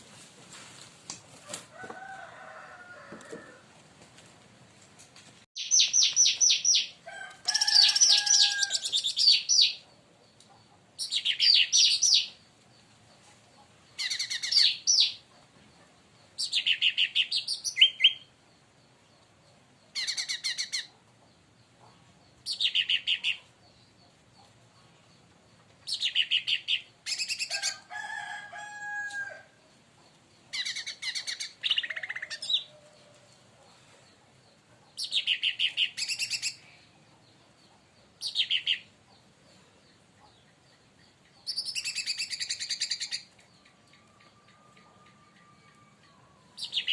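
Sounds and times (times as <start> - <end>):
bird high rapid chirping: 5.6 - 9.8, 14.0 - 15.2, 35.0 - 36.6, 41.4 - 43.3.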